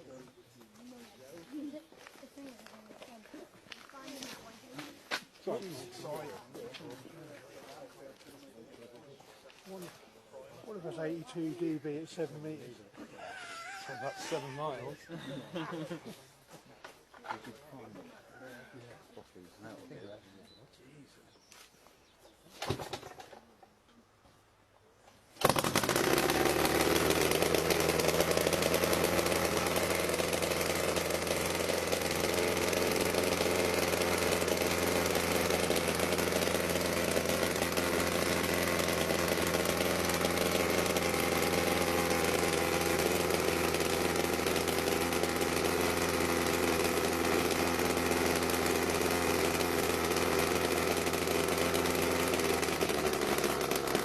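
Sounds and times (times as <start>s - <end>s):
helicopter engine running: 25.5s - 54.0s.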